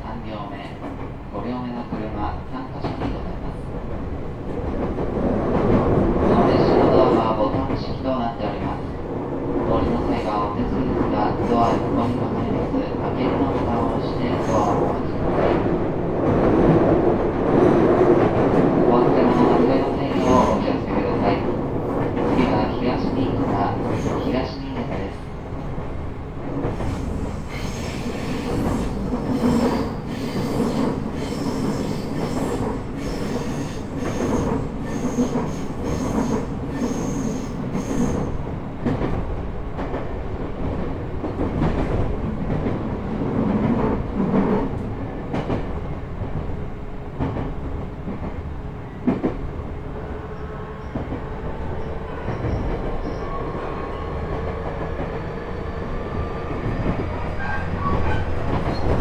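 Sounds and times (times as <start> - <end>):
train wheels and motors rumbling: 14.4 - 59.0
rail-joint clicks: 18.2 - 39.2
high-pitched wheel squeal: 27.4 - 38.3.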